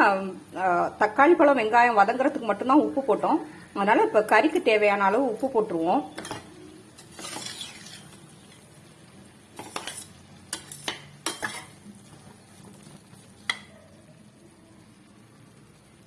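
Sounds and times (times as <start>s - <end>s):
light sizzle: 0.0s - 16.0s
spoon scraping a pan: 5.3s - 13.7s.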